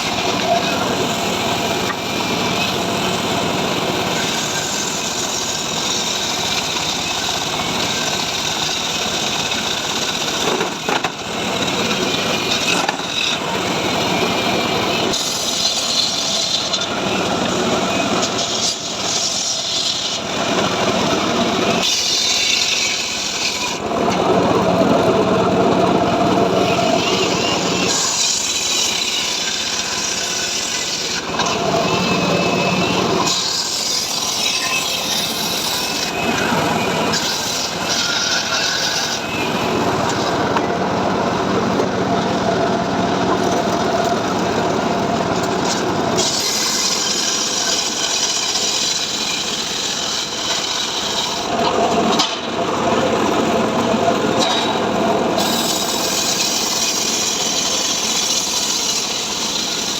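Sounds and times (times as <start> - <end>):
saw blade cutting wood: 0.0 - 24.3, 25.7 - 40.8, 43.3 - 52.5, 54.4 - 59.9
saw engine running: 0.0 - 59.9.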